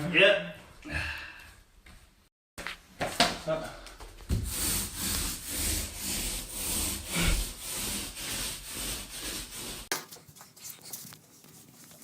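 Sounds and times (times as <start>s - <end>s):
handsaw cutting wood: 4.4s - 9.9s.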